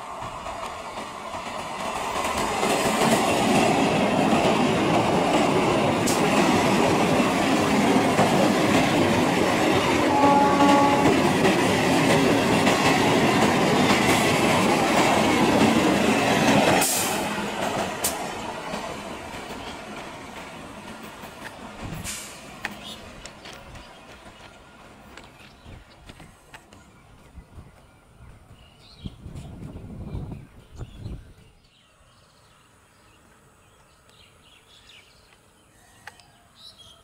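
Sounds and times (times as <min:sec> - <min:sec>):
train wheels rumbling and clattering: 0:00.0 - 0:31.6
train horn toot: 0:10.0 - 0:11.4.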